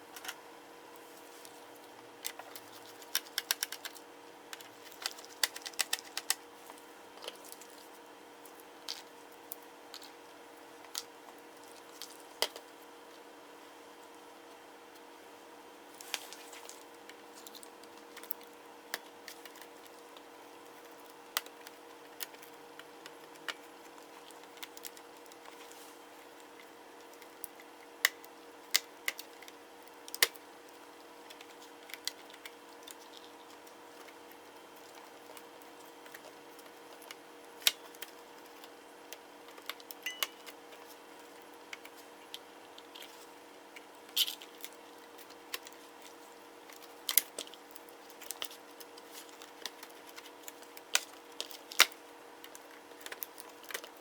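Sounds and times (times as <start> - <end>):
background hum: 0.0 - 54.0
clicks and taps of small parts: 2.2 - 6.4.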